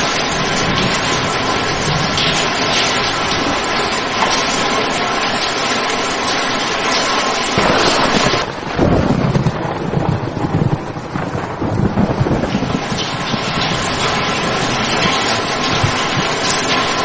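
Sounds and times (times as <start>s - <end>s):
rain hissing: 0.0s - 17.0s
low rumble: 7.6s - 16.8s.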